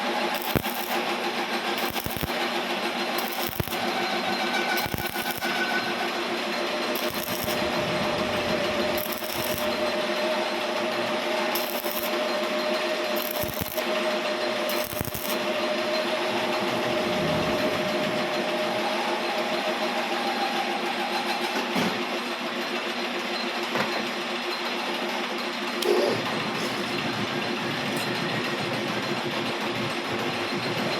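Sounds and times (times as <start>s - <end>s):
metalworking machine humming: 0.0s - 20.8s
high metal scraping: 0.3s - 2.6s, 3.2s - 18.0s.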